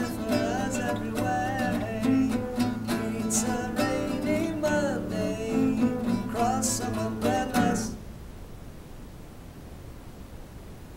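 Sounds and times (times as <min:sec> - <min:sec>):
strummed acoustic guitar: 0:00.0 - 0:08.0
faint hiss: 0:00.0 - 0:10.9.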